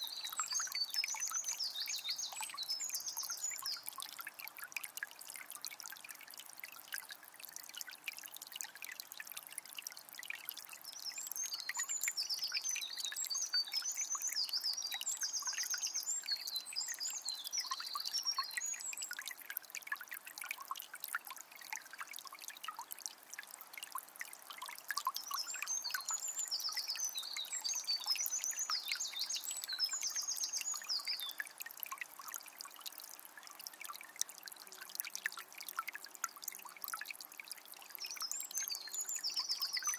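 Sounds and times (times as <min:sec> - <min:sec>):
songbird singing: 0:00.0 - 0:04.0, 0:10.9 - 0:19.3, 0:25.1 - 0:31.6, 0:38.0 - 0:39.9.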